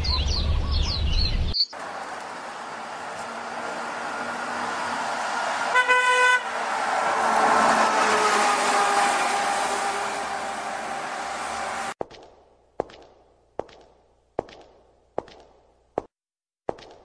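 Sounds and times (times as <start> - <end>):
road traffic: 0.0 - 16.1
vehicle passing by: 1.8 - 12.0
car horn blast: 5.7 - 6.6.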